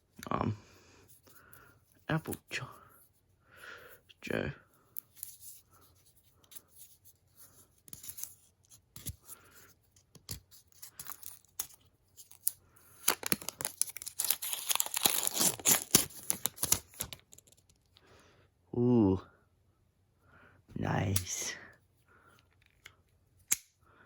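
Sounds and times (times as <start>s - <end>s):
packaging clicks and rustles: 10.2s - 17.9s
wrapping tearing and crinkling: 10.6s - 17.9s.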